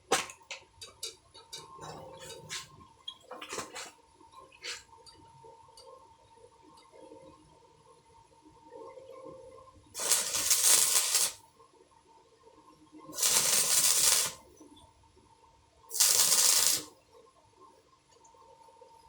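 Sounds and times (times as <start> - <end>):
welding arc crackling and hissing: 10.0 - 11.4, 13.2 - 14.4, 15.9 - 16.9.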